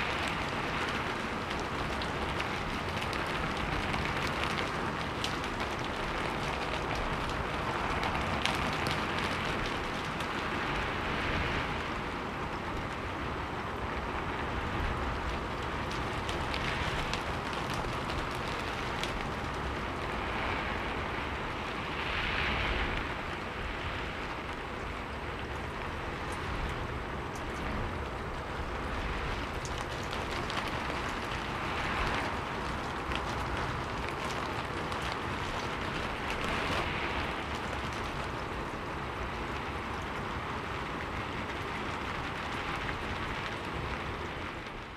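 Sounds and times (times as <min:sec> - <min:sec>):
raindrop taps: 0:00.0 - 0:10.8, 0:15.0 - 0:20.2, 0:25.6 - 0:44.9
steady rain: 0:00.0 - 0:44.9.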